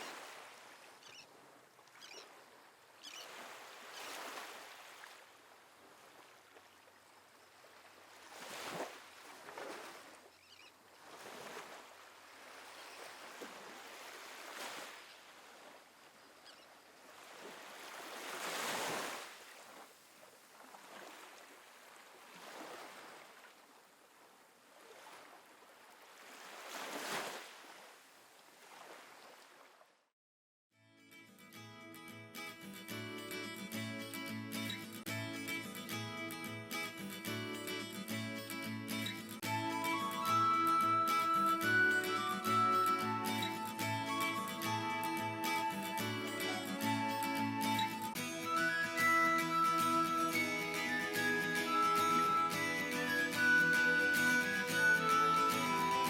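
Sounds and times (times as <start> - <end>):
ocean waves washing on beach: 0.0 - 10.2, 10.9 - 16.2, 17.0 - 29.6.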